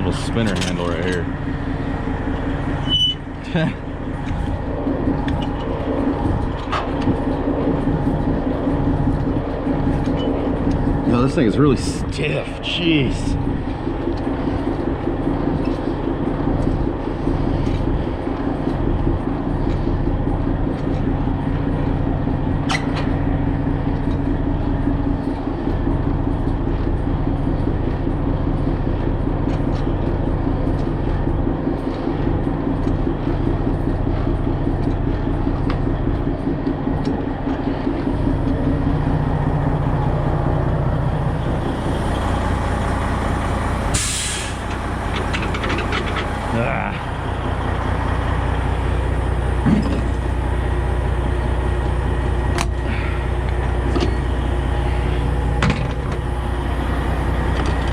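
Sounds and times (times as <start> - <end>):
diesel engine idling: 0.0 - 57.9
burst of hiss: 44.0 - 44.6.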